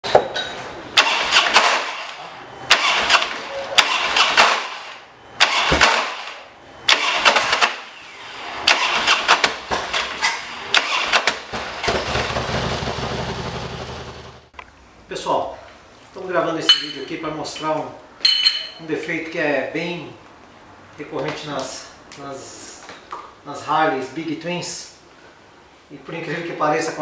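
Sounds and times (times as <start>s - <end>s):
motorcycle engine starting clatter: 1.0s - 8.0s, 8.6s - 14.5s.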